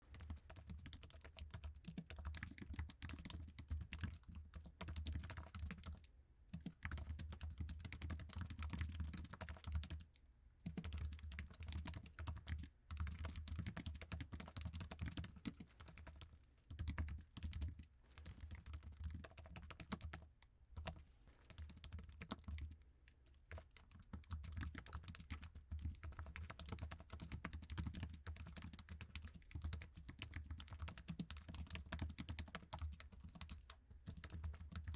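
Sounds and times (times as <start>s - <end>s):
keyboard keys clicking: 23.5s - 34.9s.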